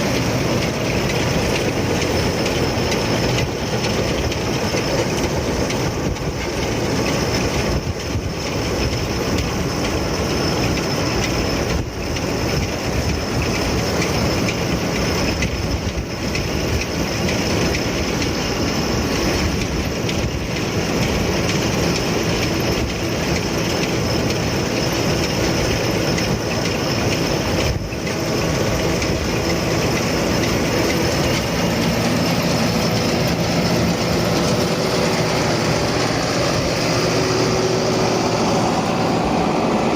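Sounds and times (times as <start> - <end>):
baler mechanical clatter: 0.0 - 39.9
thin steady whine: 0.0 - 39.9
tractor running: 0.0 - 39.9.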